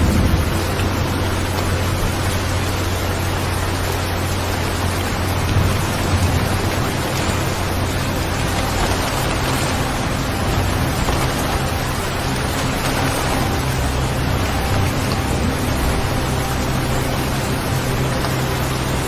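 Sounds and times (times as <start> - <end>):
low rumble: 0.0 - 19.0
steady rain: 0.0 - 19.0.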